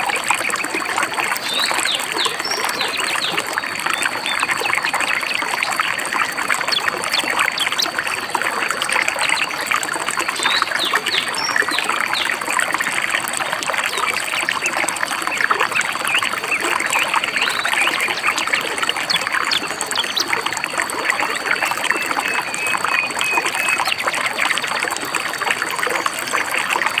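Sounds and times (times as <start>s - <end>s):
stream babbling over rocks: 0.0s - 27.0s.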